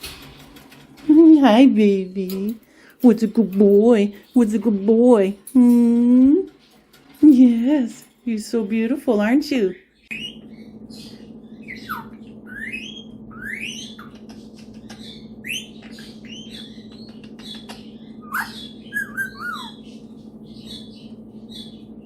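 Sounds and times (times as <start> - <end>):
steady low hum: 0.0 - 22.0
parrot chirps squawks and whistles: 10.1 - 20.0.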